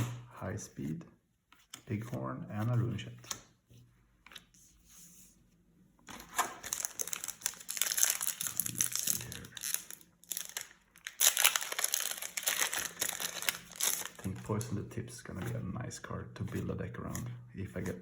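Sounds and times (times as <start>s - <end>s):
plastic wrapper crinkling and tearing: 6.1s - 14.7s.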